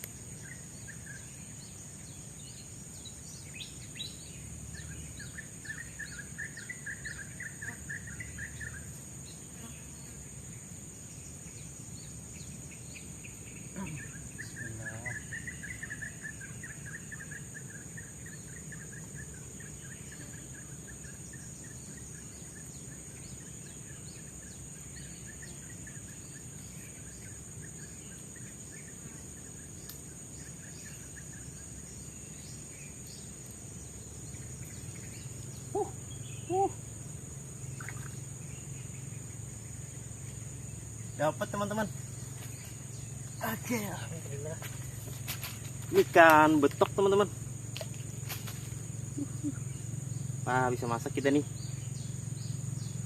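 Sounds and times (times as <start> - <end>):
high insect drone: 0.0 - 53.0
low-pitched bird calls: 34.3 - 36.9, 37.7 - 39.3, 40.3 - 53.0
bird trilling: 35.2 - 36.8.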